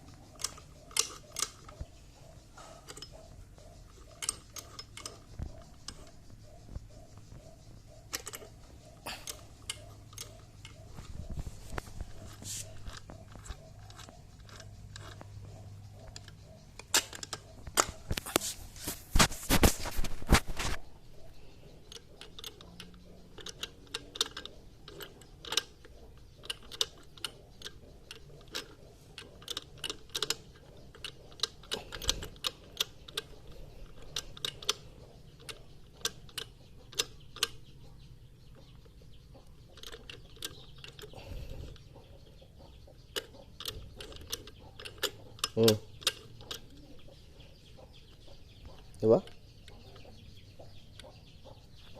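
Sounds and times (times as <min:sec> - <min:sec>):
metallic clicks of hand tools: 0:00.0 - 0:06.2, 0:08.1 - 0:10.9, 0:11.6 - 0:19.0, 0:20.5 - 0:37.7, 0:43.0 - 0:46.8.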